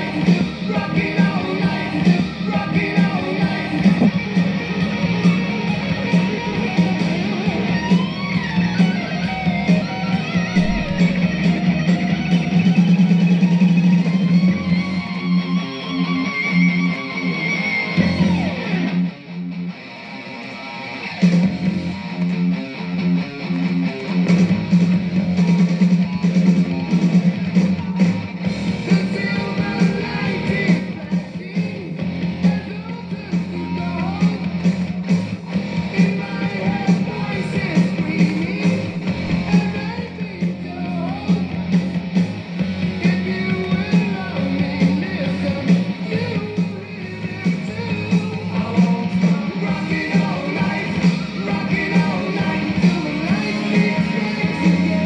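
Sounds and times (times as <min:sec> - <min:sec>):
heavy metal band playing: 0:00.0 - 0:55.0
lead electric guitar bending notes: 0:02.3 - 0:21.2.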